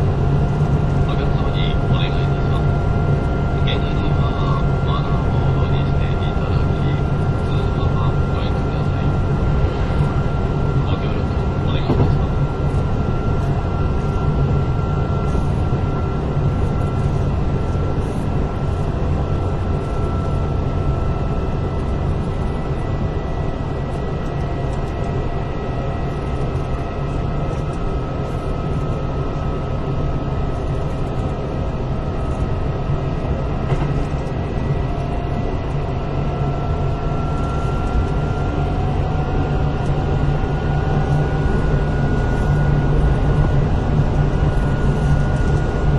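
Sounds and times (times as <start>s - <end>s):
train wheels rumbling on rail: 11.7s - 13.6s, 33.6s - 34.3s.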